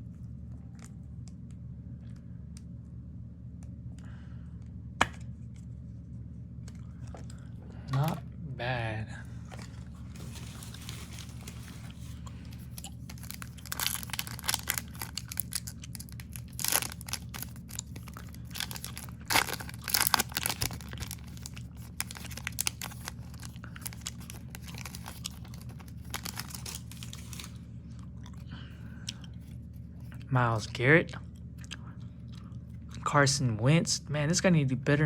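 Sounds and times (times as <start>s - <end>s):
steady low hum: 0.0s - 35.0s
foil wrapper tearing and crinkling: 9.6s - 27.6s.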